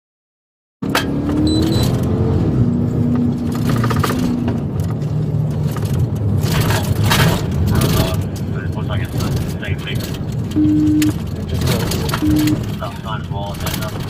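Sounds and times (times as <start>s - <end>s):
car engine and road noise: 0.8s - 14.0s
clicks: 10.3s - 12.8s.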